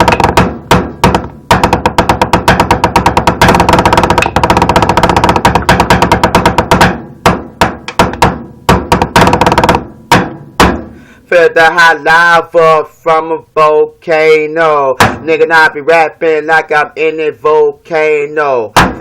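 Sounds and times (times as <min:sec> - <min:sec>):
rap beat percussion hits: 0:00.0 - 0:11.0, 0:14.9 - 0:16.7, 0:18.6 - 0:19.0.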